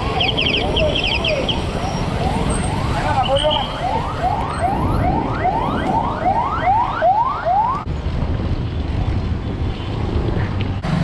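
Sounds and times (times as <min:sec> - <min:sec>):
repeating rising whoop siren: 0:00.0 - 0:07.9
wind and road noise: 0:00.0 - 0:11.0.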